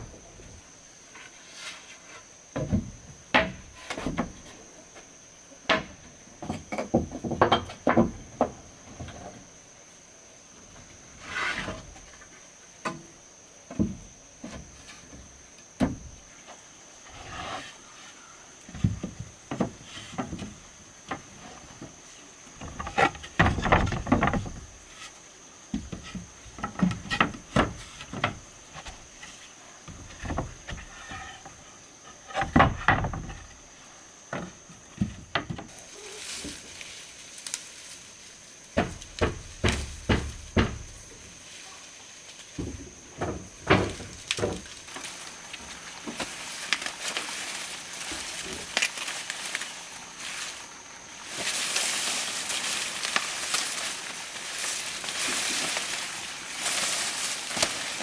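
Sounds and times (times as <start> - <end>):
knocks and thuds: 22.6 - 24.8, 38.8 - 41.2, 42.6 - 44.8.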